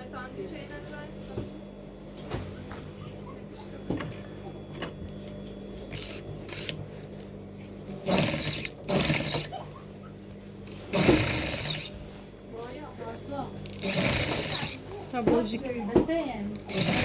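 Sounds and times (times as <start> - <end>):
sewing machine motor humming: 5.8 - 7.2, 7.8 - 12.1, 13.1 - 17.0
sewing machine stitching: 8.0 - 9.6, 10.9 - 11.9, 13.6 - 14.9, 16.6 - 17.0.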